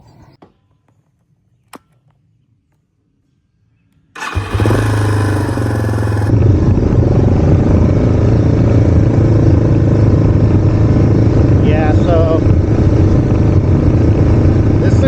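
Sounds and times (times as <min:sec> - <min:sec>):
motorcycle engine running: 0:04.2 - 0:15.0.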